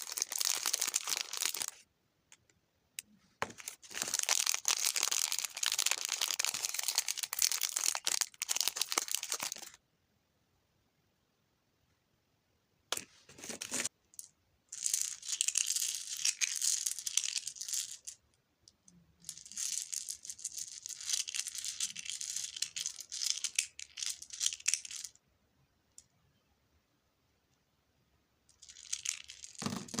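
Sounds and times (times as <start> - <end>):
packaging rustling and tearing: 0.0 - 1.8, 3.4 - 9.7.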